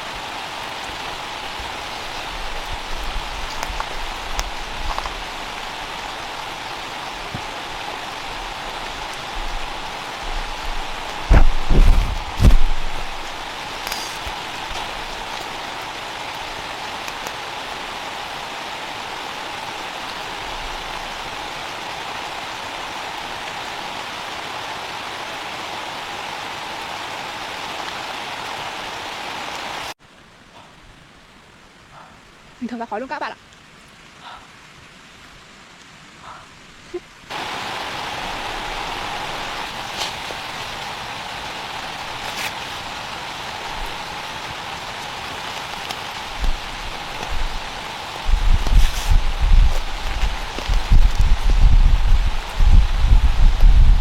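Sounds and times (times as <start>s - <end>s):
steady rain: 0.0s - 54.0s
low rumbling thumps: 11.2s - 13.2s.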